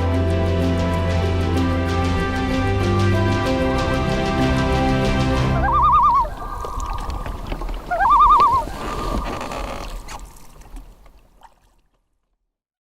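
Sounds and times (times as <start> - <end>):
short warbling calls: 5.6 - 9.5.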